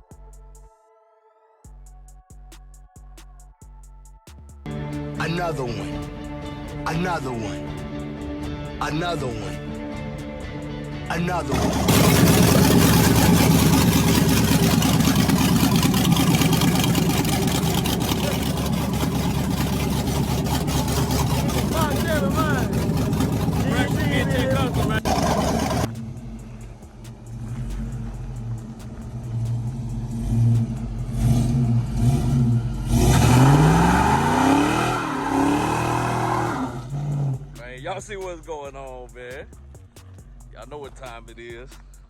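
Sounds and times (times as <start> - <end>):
car engine idling: 11.2 - 42.0.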